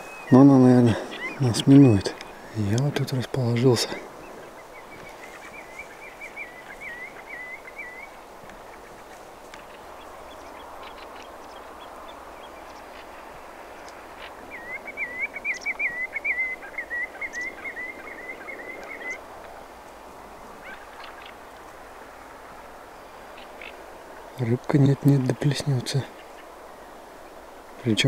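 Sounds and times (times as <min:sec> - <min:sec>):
bird calling in wavering notes: 0:14.5 - 0:19.2.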